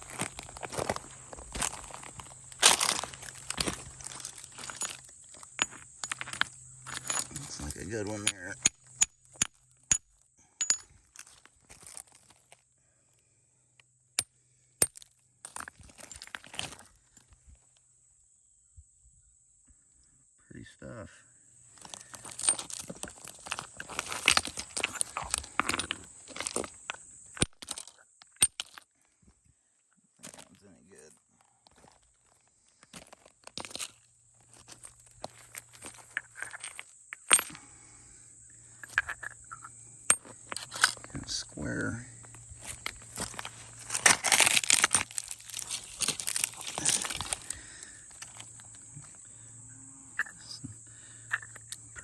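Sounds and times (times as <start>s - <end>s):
gravel and rocks crunching: 0.0s - 12.7s, 14.8s - 17.4s, 21.6s - 29.1s, 30.2s - 38.0s, 38.6s - 49.2s
stone clicks: 2.6s - 12.1s, 21.9s - 28.9s, 34.8s - 37.7s, 38.8s - 41.2s, 51.2s - 52.0s.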